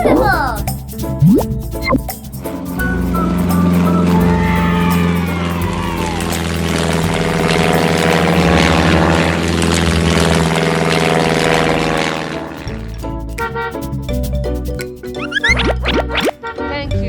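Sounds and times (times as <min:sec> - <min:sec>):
loud engine-like drone: 0:02.7 - 0:12.7.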